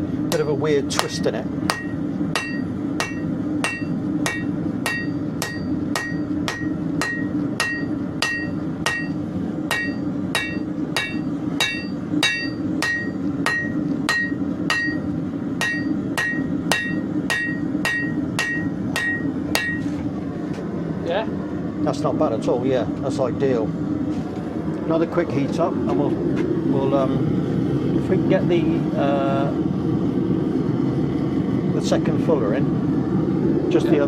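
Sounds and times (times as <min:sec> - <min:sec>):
steady low hum: 0:00.0 - 0:34.0
hammer striking steel on anvil: 0:00.3 - 0:20.0.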